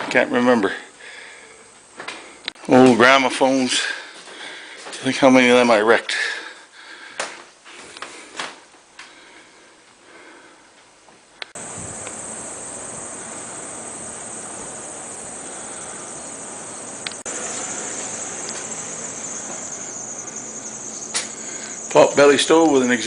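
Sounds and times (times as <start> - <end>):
low hiss: 9.6 - 23.0
cricket chirring: 11.6 - 23.0.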